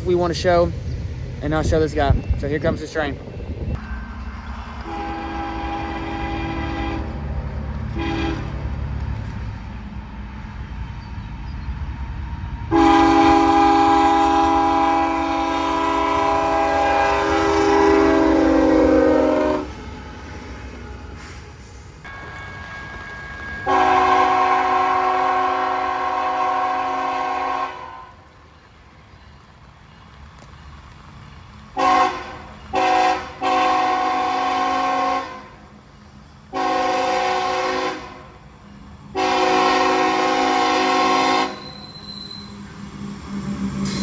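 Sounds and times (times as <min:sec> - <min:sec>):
train low rumble: 0:00.0 - 0:44.0
locomotive air horn blasts: 0:04.8 - 0:07.2, 0:07.9 - 0:08.6, 0:12.7 - 0:19.8, 0:23.7 - 0:28.1, 0:31.8 - 0:35.6, 0:36.5 - 0:38.3, 0:39.2 - 0:42.5.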